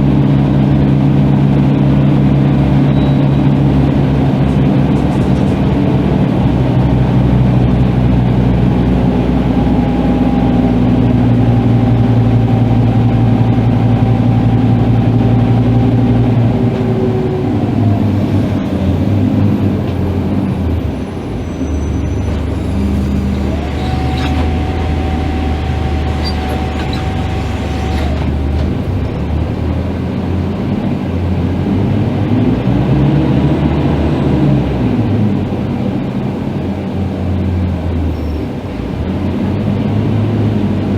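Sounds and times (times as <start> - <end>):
bus engine running: 0.0 - 40.9
steady high whine: 20.0 - 29.3.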